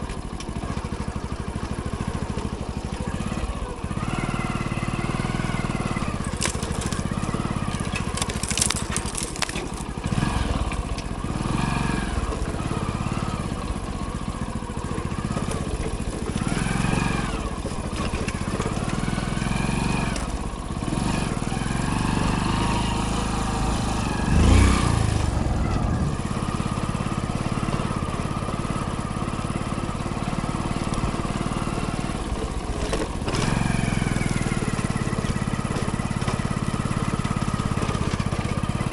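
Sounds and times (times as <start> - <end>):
motorcycle engine revving: 0.6 - 38.9
knocks and rattles: 6.2 - 10.0.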